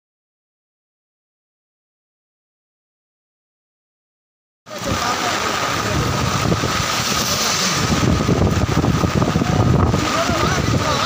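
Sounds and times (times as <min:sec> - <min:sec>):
heavy rain hissing: 0:04.7 - 0:11.0
wind buffeting microphone: 0:04.7 - 0:11.0.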